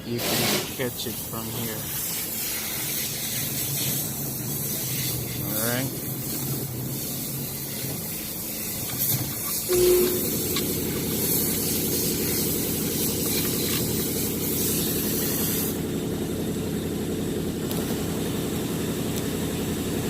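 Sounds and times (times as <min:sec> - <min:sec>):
hiss: 0:00.2 - 0:09.7, 0:11.2 - 0:15.8
motor running: 0:01.9 - 0:20.0.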